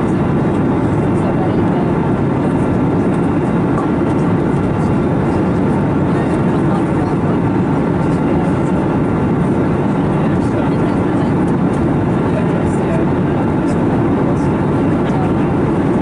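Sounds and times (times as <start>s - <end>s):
airplane cabin noise: 0.0s - 16.0s.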